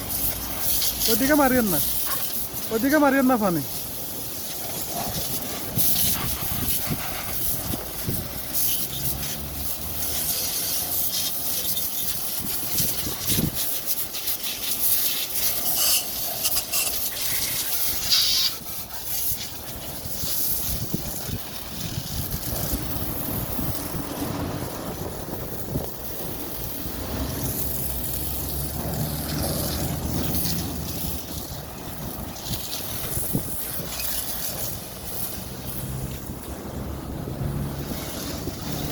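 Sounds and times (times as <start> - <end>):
hose spraying water on vehicle: 0.0 - 38.9.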